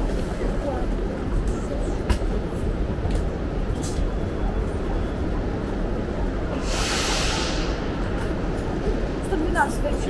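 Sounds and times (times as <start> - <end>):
train rumbling at platform: 0.0 - 10.0
train air hiss: 6.5 - 9.2.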